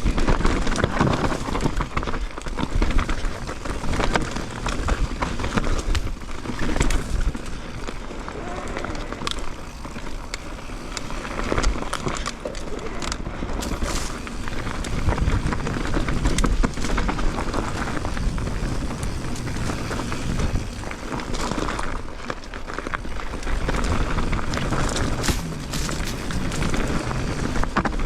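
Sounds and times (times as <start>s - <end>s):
bike clattering and rattling: 0.0s - 28.0s
tyres rolling over rocky ground: 0.0s - 28.0s
wind rumbling on microphone: 0.0s - 28.0s.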